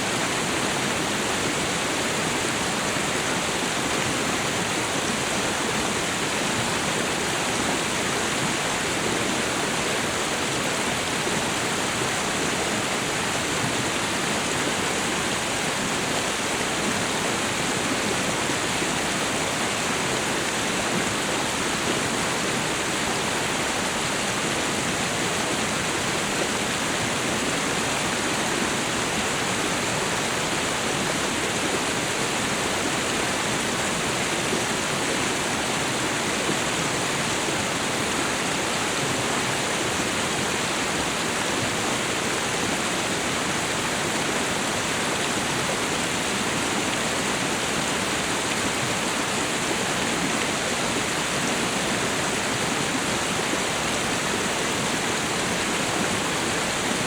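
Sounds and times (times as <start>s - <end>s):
waterfall and river rushing: 0.0s - 57.0s.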